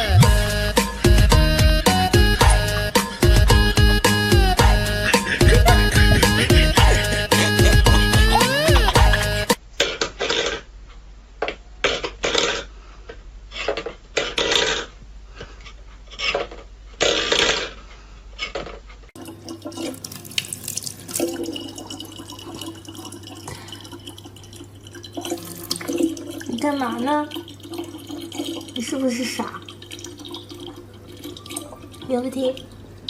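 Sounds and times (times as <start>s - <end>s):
low hum: 0.0s - 9.6s
water splashing: 19.2s - 33.0s.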